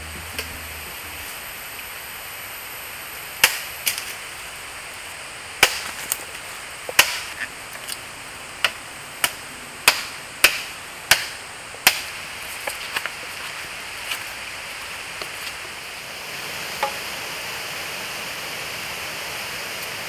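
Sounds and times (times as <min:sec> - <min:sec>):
dry bamboo cracking: 0:05.6 - 0:15.8.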